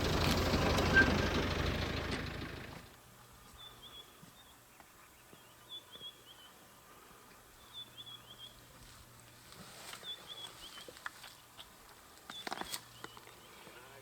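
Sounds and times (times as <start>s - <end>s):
birds chirping: 0.0s - 2.9s.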